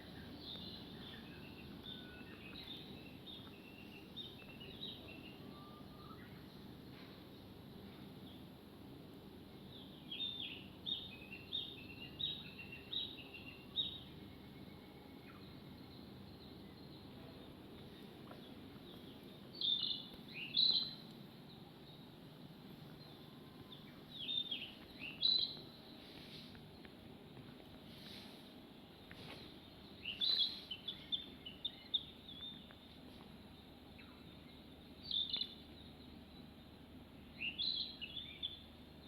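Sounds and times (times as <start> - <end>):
low background hum: 0.0 - 39.0
small bird chirping: 9.8 - 22.1, 22.9 - 28.5, 29.1 - 36.6.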